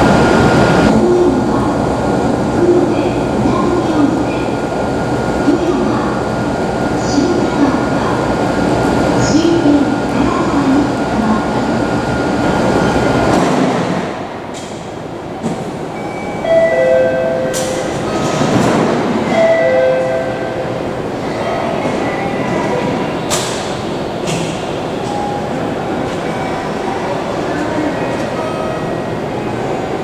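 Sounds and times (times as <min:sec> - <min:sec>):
train rumble and hiss: 0:00.0 - 0:30.0
two-note station tones: 0:16.0 - 0:18.1.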